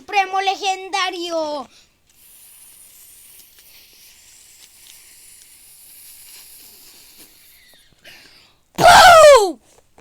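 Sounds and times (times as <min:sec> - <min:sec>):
steady hiss: 0:00.8 - 0:08.1.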